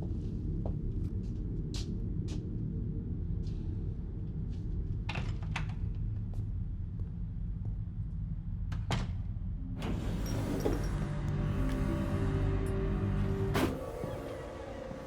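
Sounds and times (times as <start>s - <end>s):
background music: 9.5s - 15.0s.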